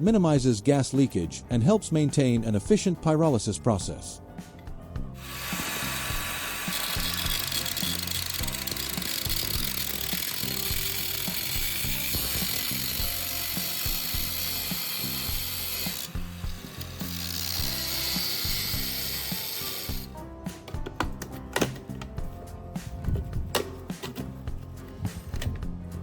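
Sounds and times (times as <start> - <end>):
background music: 0.0 - 26.0
tool cutting into steel: 5.2 - 20.2.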